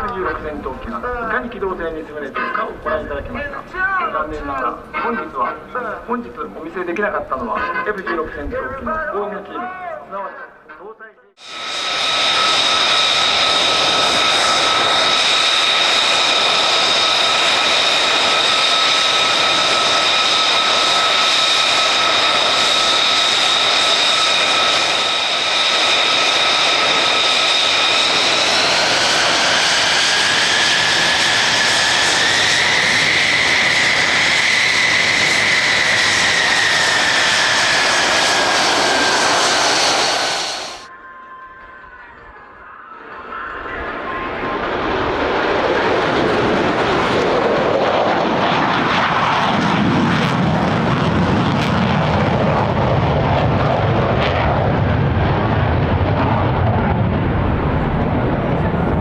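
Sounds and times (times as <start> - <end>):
jet engine running: 0.0 - 8.8, 11.4 - 40.9, 43.2 - 59.0
high engine whine: 11.4 - 40.9.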